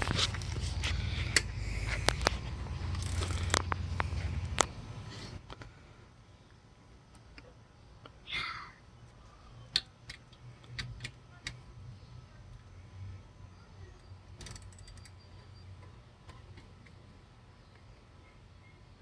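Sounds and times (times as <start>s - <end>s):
socket ratchet clicking: 14.4s - 15.2s.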